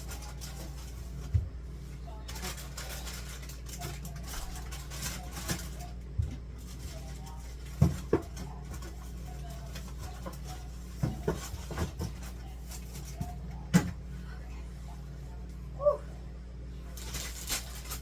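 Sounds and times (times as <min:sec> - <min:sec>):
steady low hum: 0:00.0 - 0:18.0
items knocking on fridge shelves: 0:05.0 - 0:14.1.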